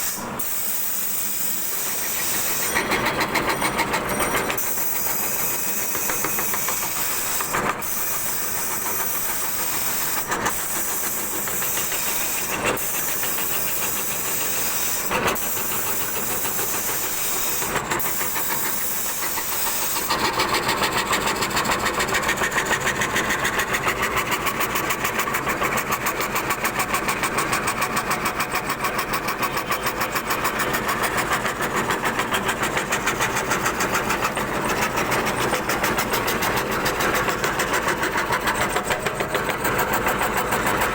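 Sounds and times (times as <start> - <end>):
router spindle cutting wood: 0.0 - 40.9.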